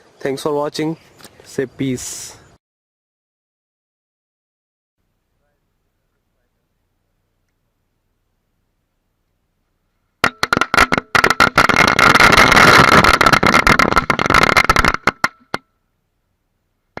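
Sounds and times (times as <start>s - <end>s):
firecrackers going off: 10.2s - 15.6s.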